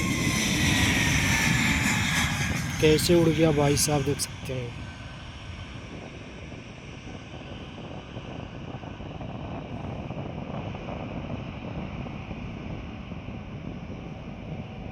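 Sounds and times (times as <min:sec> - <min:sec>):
jet engines rumbling: 0:00.0 - 0:04.7.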